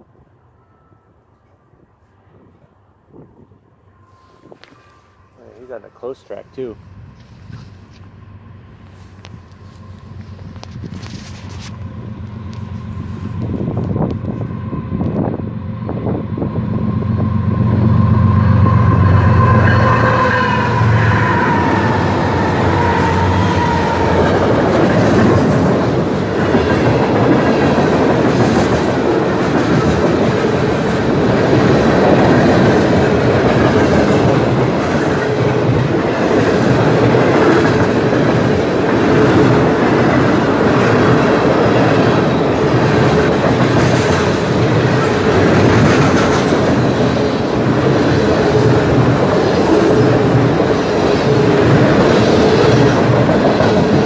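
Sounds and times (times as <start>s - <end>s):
diesel locomotives droning: 0.0s - 54.0s
freight cars rattling over rails: 17.1s - 54.0s.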